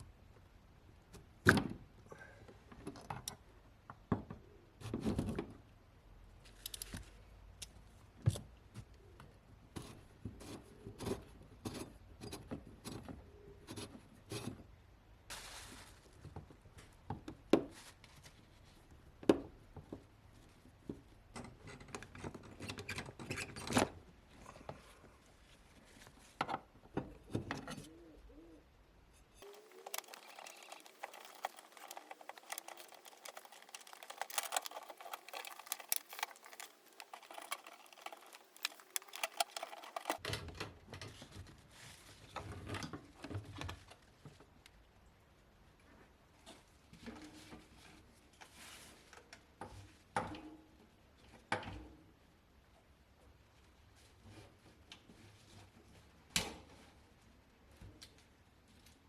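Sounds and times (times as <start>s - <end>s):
hand tools clicking and clinking: 29.4s - 40.2s.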